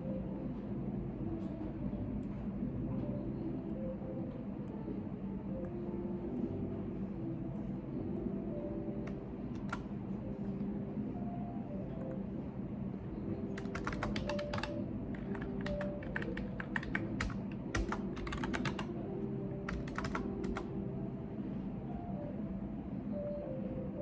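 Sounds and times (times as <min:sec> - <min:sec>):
low background hum: 0:00.0 - 0:24.0
keyboard typing: 0:09.0 - 0:09.9, 0:13.5 - 0:19.0, 0:19.6 - 0:20.7.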